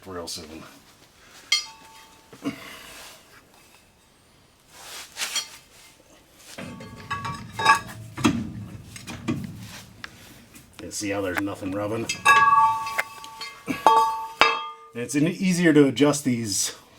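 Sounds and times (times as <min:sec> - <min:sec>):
metal tools clinking: 0:01.5 - 0:02.2, 0:06.6 - 0:10.7, 0:11.3 - 0:14.9
metal parts clanking: 0:06.6 - 0:14.8.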